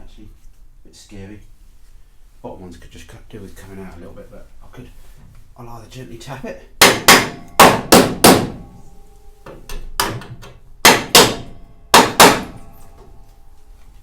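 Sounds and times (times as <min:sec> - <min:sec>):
hammer striking steel panel: 0:06.8 - 0:08.8, 0:09.4 - 0:13.2.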